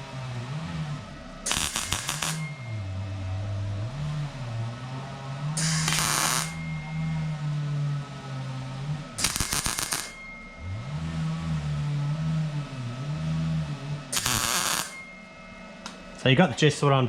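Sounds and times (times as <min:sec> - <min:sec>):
background music with low melody: 0:00.0 - 0:17.0
welding crackle: 0:01.5 - 0:02.6, 0:05.6 - 0:06.6, 0:09.2 - 0:10.2, 0:14.2 - 0:15.0.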